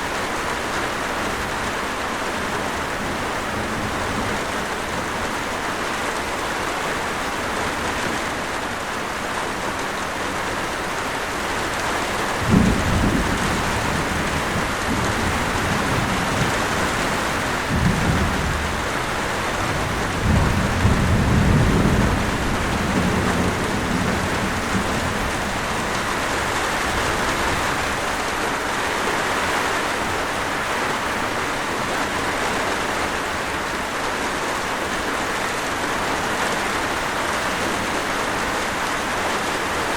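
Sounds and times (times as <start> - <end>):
heavy rain: 0.0 - 39.9
thunder rumbling: 12.2 - 28.3.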